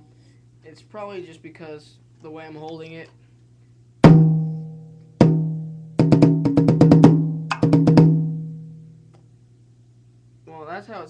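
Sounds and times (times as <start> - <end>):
dampened tom drum strokes: 4.0 - 8.8.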